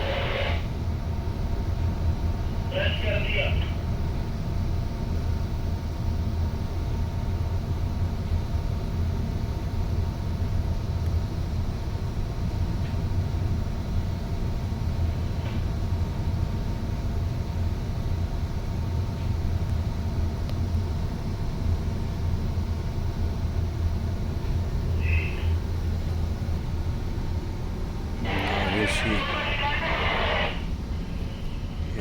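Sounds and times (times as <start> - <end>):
faint steady hum: 0.0 - 32.0
ship engine rumble: 24.3 - 32.0.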